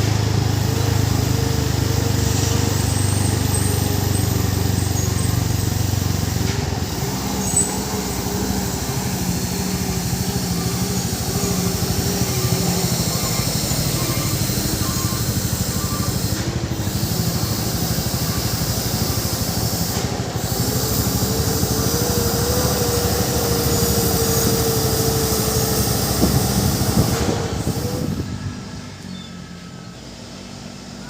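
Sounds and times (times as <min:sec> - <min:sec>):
diesel truck passing: 0:00.0 - 0:31.0.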